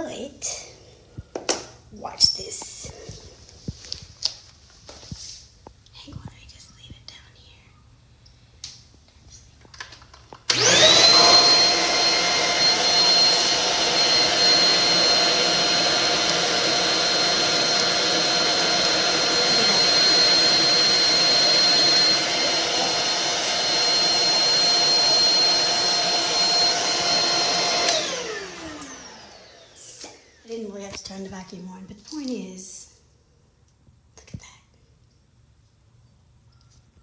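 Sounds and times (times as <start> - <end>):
vacuum cleaner motor whine: 10.5 - 30.9.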